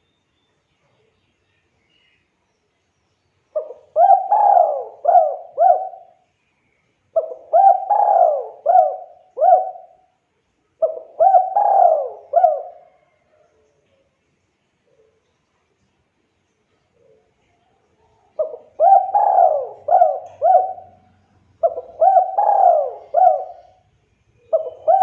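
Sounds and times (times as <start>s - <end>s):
dove cooing: 3.6s - 6.2s, 7.2s - 10.1s, 10.8s - 13.3s, 18.4s - 25.0s.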